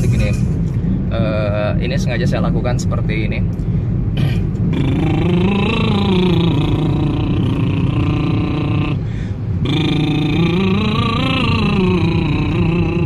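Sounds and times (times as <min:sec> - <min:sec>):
low car hum: 0:00.0 - 0:13.0
man breathing: 0:00.6 - 0:01.1, 0:08.9 - 0:09.9
man doing lip trill: 0:04.2 - 0:09.0, 0:09.6 - 0:13.0.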